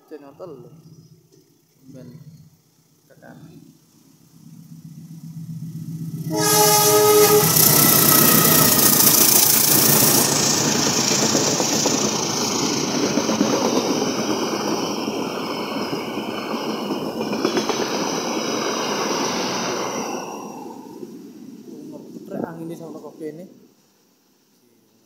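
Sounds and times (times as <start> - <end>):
train rushing past: 3.9 - 23.9
train horn: 6.2 - 9.6.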